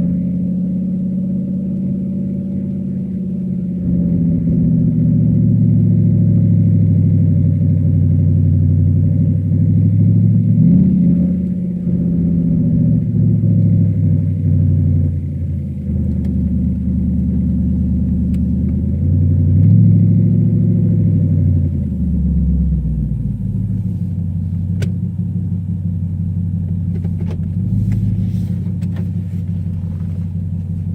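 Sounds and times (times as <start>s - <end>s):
car engine running: 0.0s - 30.9s.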